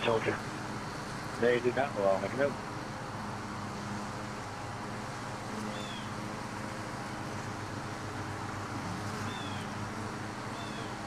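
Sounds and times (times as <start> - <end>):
bees buzzing: 0.0 - 11.0
even hiss: 0.0 - 11.0.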